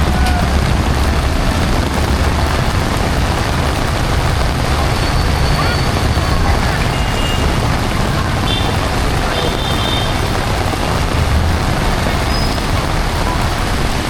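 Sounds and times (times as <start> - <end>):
heavy rain: 0.0 - 14.0
passing road traffic: 0.0 - 14.0.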